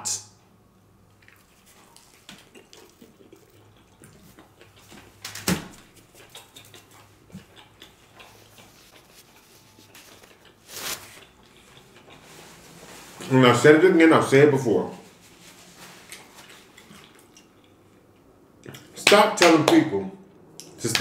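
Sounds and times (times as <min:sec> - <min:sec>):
man chewing: 0:00.8 - 0:13.3, 0:15.1 - 0:19.0
wet mouth clicks and smacks: 0:01.2 - 0:10.6.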